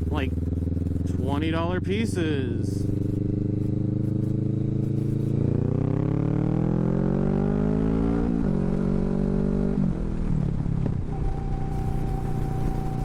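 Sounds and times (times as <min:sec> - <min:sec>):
motorcycle engine revving: 0:00.0 - 0:13.0
thin steady whine: 0:11.1 - 0:13.0.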